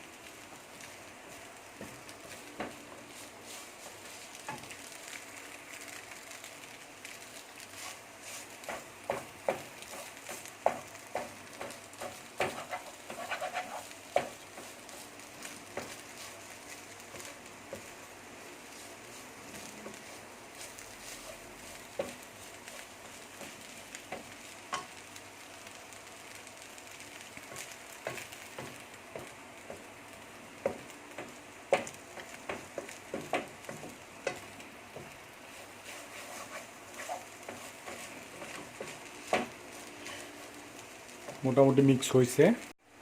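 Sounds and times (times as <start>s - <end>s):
noodles sizzling in a pan: 0.0s - 43.0s
spatula scraping pan: 7.7s - 16.4s, 30.7s - 40.6s.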